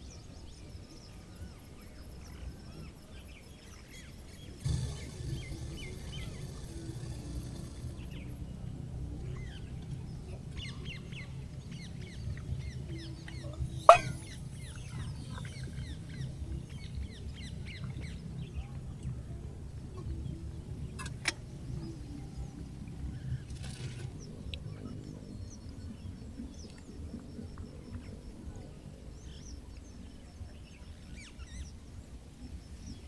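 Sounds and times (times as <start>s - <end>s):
birds chirping: 0.0s - 33.0s
steady low rumble: 2.6s - 23.6s
sharp loud bang: 4.6s - 8.4s.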